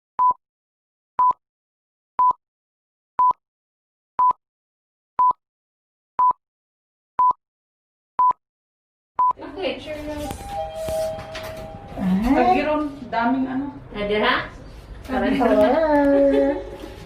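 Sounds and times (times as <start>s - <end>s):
short electronic beeps: 10.4s - 12.2s.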